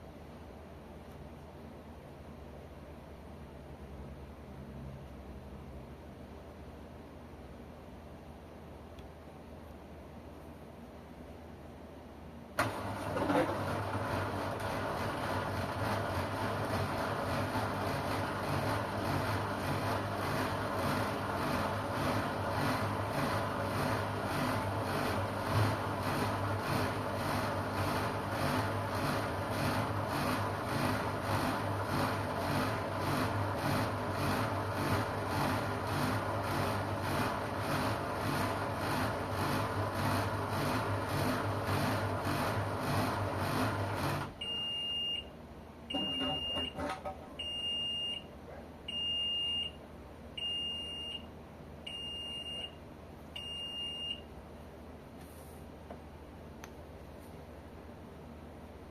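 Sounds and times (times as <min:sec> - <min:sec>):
washing machine churning: 0:12.6 - 0:44.5
high beeps: 0:45.9 - 0:46.8.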